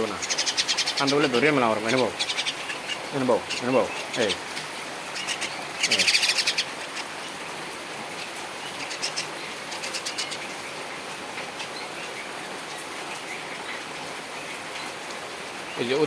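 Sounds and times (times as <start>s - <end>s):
birds' wings flapping: 0.0s - 11.7s
falling rain: 0.0s - 16.0s.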